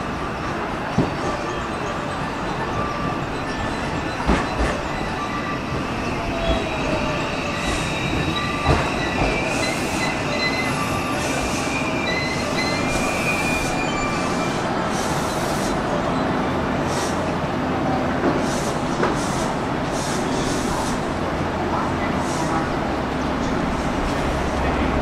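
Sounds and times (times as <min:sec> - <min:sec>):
rail joint clack: 0:00.4 - 0:15.8
train brakes squealing: 0:01.2 - 0:17.3.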